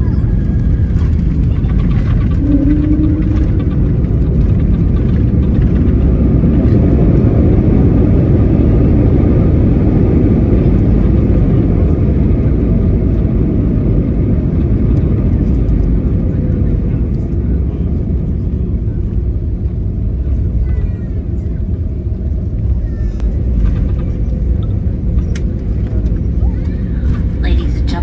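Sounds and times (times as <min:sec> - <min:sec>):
faint whining tones: 0:00.0 - 0:09.9, 0:19.8 - 0:28.0
jet engine and airflow rush in cabin: 0:00.0 - 0:28.0.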